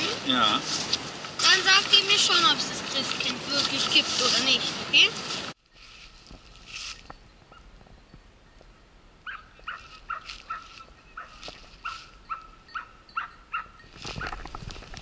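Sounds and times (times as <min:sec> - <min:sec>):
bird calling: 0:08.5 - 0:14.4.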